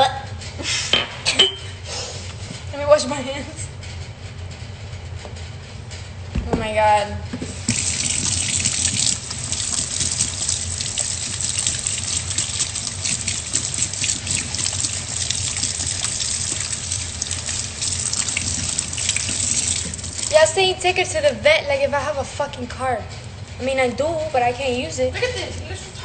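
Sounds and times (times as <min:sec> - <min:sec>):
tap water running into sink: 0:07.4 - 0:20.6.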